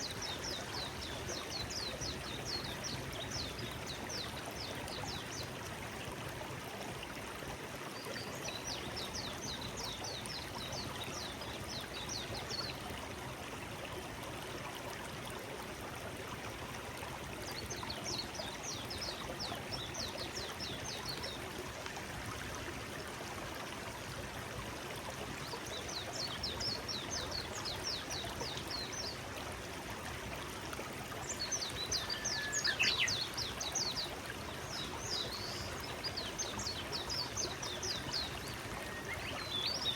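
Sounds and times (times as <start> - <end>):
stream flowing: 0.0 - 39.9
songbird singing high notes: 32.0 - 33.2.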